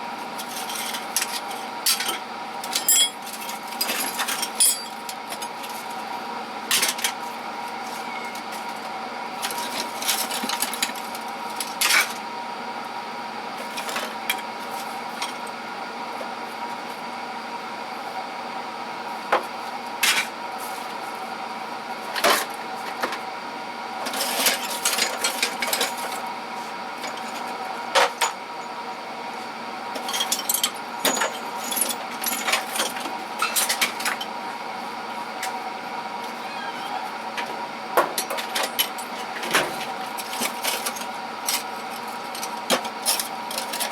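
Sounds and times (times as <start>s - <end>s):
steady shop hum: 0.0s - 43.9s
hand tools clinking: 4.6s - 5.0s.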